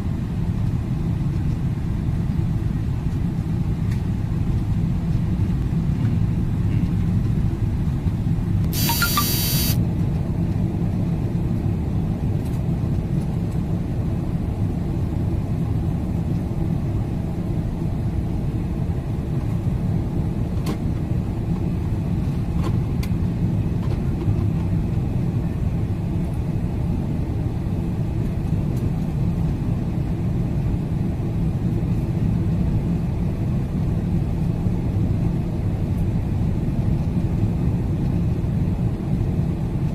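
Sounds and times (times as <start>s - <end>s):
high-pitched tone: 8.7s - 9.8s.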